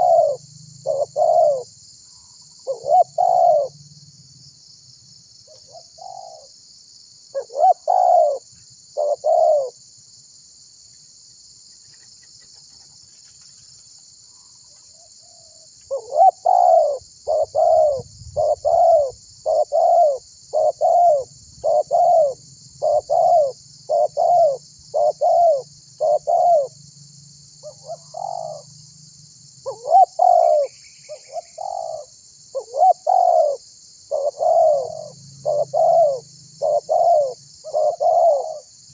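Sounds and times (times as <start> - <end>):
dove cooing: 0.0 - 1.7, 2.6 - 3.8, 5.5 - 6.5, 7.3 - 9.8, 15.0 - 26.8, 27.6 - 28.7, 29.6 - 38.7.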